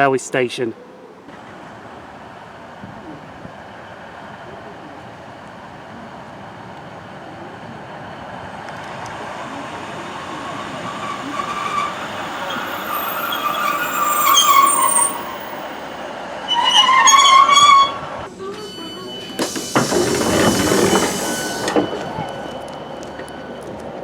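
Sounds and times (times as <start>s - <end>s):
diesel train approaching: 1.1s - 24.0s
train brakes squealing: 9.3s - 24.0s.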